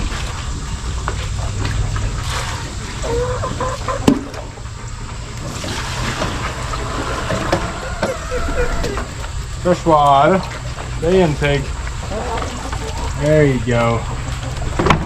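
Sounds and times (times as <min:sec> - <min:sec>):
water pouring and splashing: 0:05.4 - 0:07.4.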